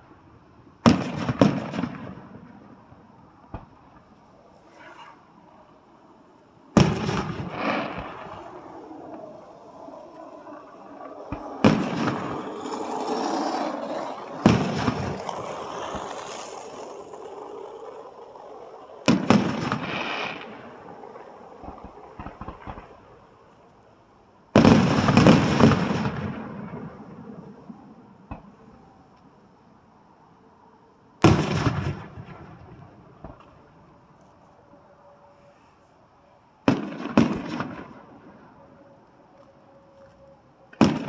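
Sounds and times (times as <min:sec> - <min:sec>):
firework bangs: 0:00.8 - 0:04.2, 0:06.7 - 0:09.5, 0:10.6 - 0:23.2, 0:24.5 - 0:28.6, 0:31.2 - 0:33.6, 0:36.6 - 0:38.6, 0:40.7 - 0:41.0.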